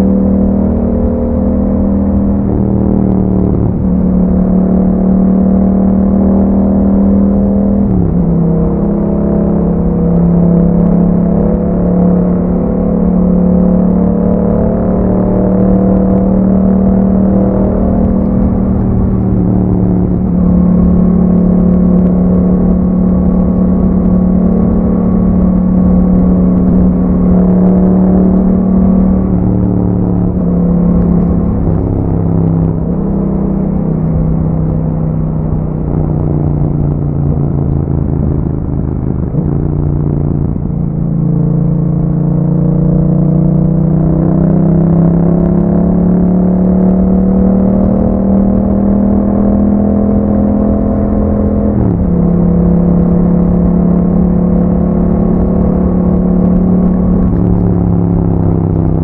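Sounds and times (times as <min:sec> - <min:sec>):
motorcycle engine running: 0:14.9 - 0:59.0.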